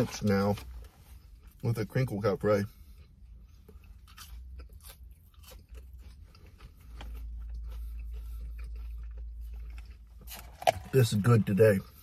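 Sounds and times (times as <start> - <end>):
crunching and chewing fry: 0.0 - 12.0.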